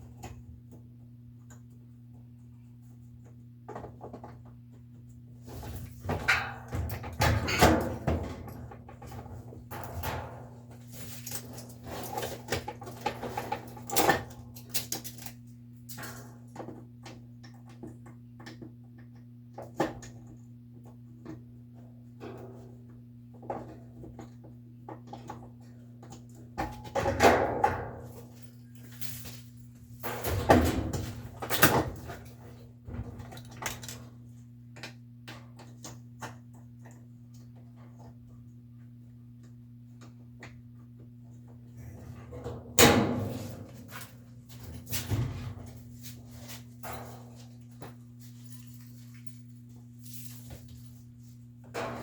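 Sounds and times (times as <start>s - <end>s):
steady low hum: 0.0s - 52.0s
tools knocking and scraping on parts: 5.6s - 15.4s.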